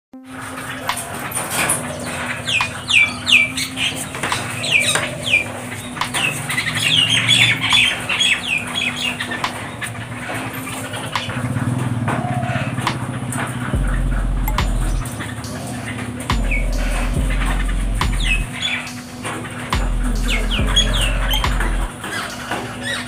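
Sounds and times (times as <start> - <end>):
birds chattering: 0.4 - 23.0
birds calling harshly: 0.5 - 23.0
sharp taps on metal roof: 11.2 - 13.9
low rumble: 13.7 - 15.1, 16.3 - 18.5.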